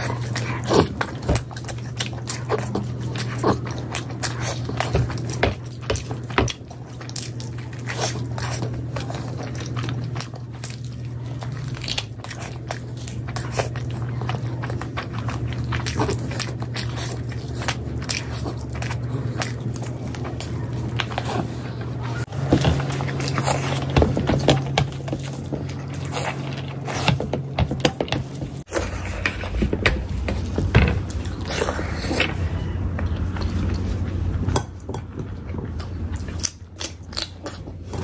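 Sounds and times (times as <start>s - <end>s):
wet chewing and lip smacking: 0.0s - 21.6s, 30.3s - 38.0s
steady low hum: 0.0s - 38.0s.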